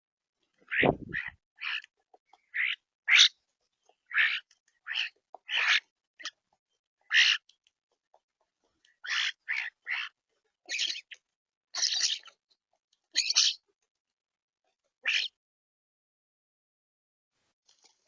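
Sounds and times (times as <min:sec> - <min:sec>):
birds making harsh calls: 0:00.6 - 0:07.5, 0:08.6 - 0:12.4, 0:13.1 - 0:13.7, 0:15.0 - 0:15.4.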